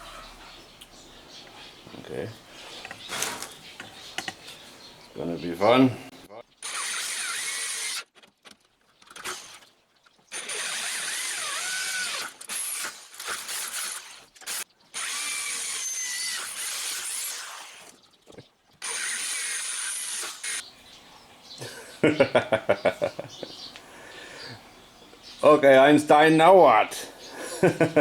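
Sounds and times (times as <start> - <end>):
drill bit squealing: 6.6 - 8.0, 18.8 - 20.6
electric drill boring steel: 6.6 - 8.0, 10.3 - 18.0, 18.8 - 20.6.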